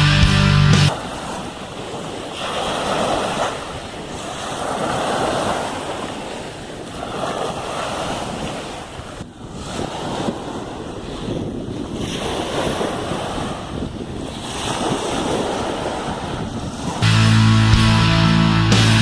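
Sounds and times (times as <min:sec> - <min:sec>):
waves washing onto beach: 0:00.9 - 0:17.0.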